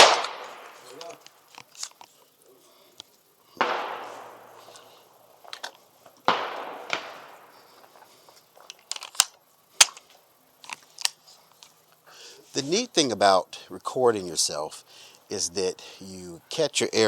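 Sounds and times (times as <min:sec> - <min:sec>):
gunshots echoing: 0:00.0 - 0:01.2, 0:03.6 - 0:05.4, 0:06.2 - 0:08.0
sharp cracks: 0:00.0 - 0:02.2, 0:03.0 - 0:11.2.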